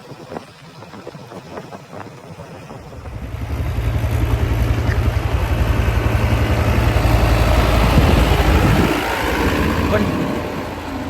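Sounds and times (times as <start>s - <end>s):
tractor diesel engine droning: 2.8s - 11.0s.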